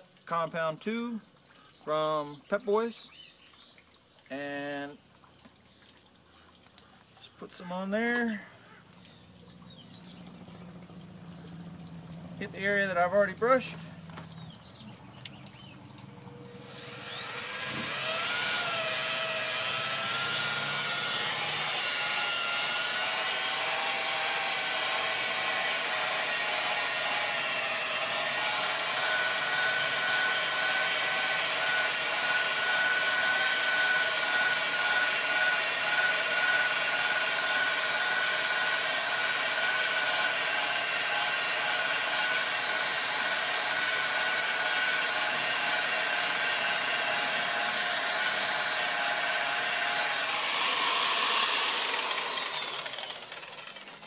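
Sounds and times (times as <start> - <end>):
electric polisher whining: 16.5 - 54.0.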